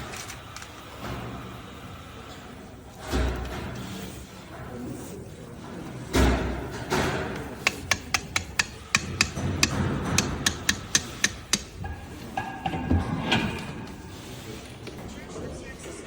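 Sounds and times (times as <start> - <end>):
sharp taps: 7.4 - 12.6.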